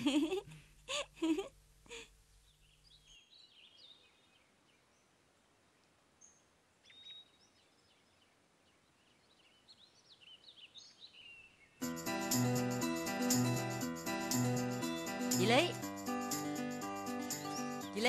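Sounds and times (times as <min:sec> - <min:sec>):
quiet background hiss: 0:00.0 - 0:11.8
faint birds chirping: 0:01.9 - 0:11.8, 0:16.9 - 0:18.0.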